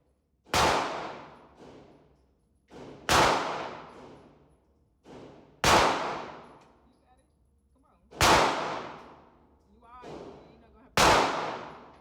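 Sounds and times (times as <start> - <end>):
loud echoing gunshots: 0.5 - 1.6, 2.9 - 4.2, 5.6 - 6.6, 8.1 - 9.3, 11.0 - 12.0.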